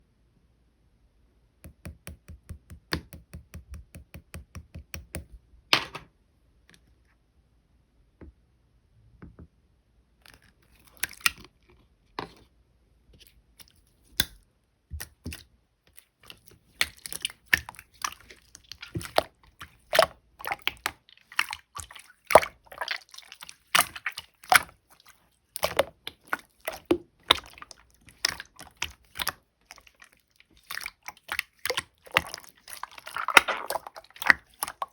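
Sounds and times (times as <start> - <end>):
slime squelching and popping: 15.0 - 34.9.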